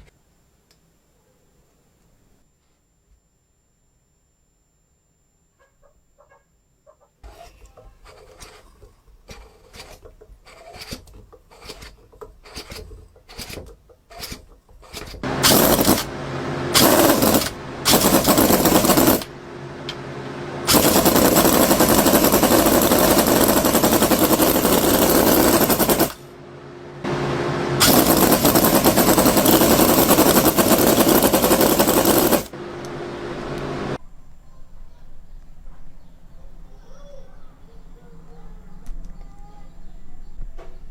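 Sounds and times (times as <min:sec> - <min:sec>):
miniature diesel engine running: 0:15.2 - 0:34.0.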